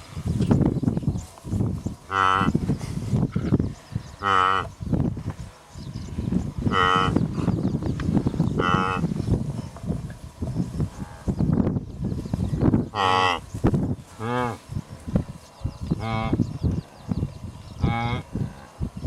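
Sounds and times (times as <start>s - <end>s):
wildebeest nasal grunting calls: 2.0s - 4.9s, 6.6s - 7.6s, 8.3s - 9.3s, 12.9s - 13.5s, 14.1s - 14.6s, 15.9s - 18.9s.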